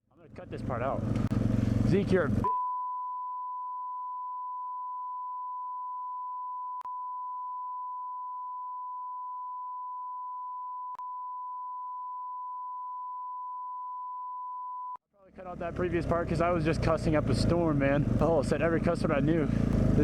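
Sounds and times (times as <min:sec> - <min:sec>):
long censor beep: 0:02.4 - 0:15.0.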